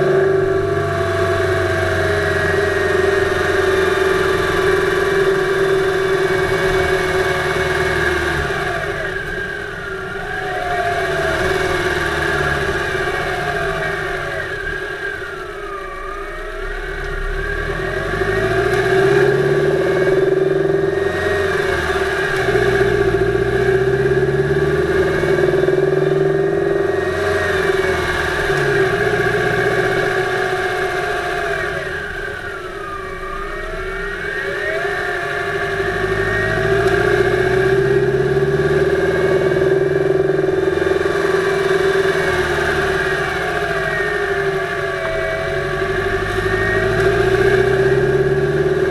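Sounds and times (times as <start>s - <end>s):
engine knocking: 0.0s - 15.8s, 33.6s - 48.9s
car engine revving: 0.0s - 48.9s.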